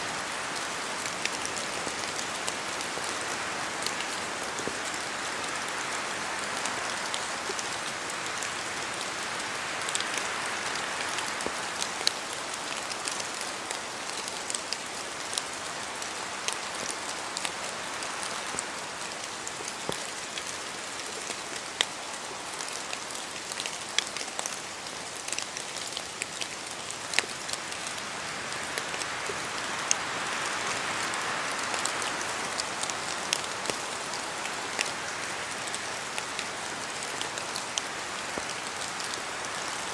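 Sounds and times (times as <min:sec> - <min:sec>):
rain falling in forest: 0:00.0 - 0:39.9.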